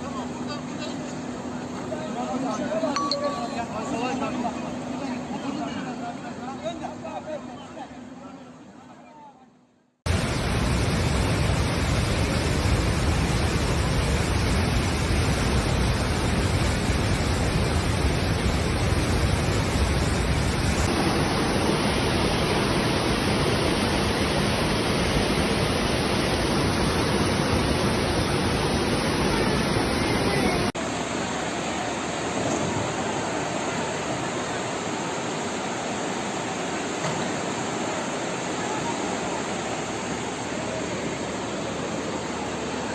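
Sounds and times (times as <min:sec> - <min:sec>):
floodwater rushing: 0:10.1 - 0:42.9.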